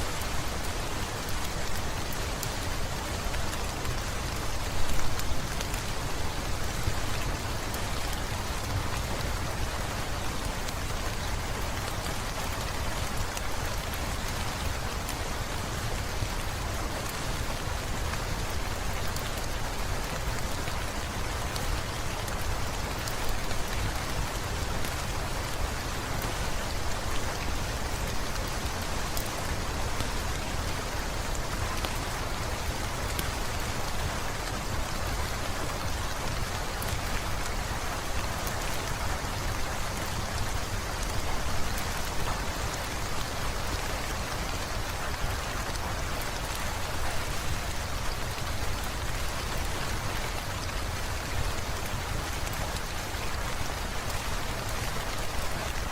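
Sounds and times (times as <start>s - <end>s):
heavy rain falling: 0.0s - 55.9s.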